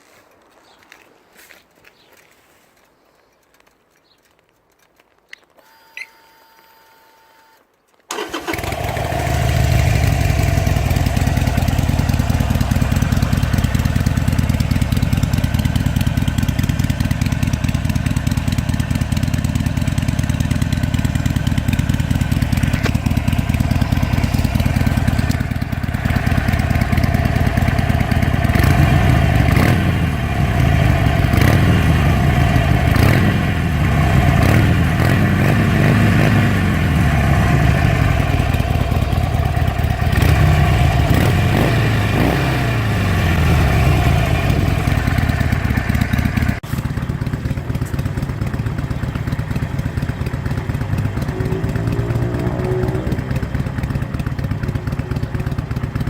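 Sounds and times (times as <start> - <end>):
motorcycle throttle blips: 5.3 - 56.0
motorcycle engine idling: 8.1 - 56.0.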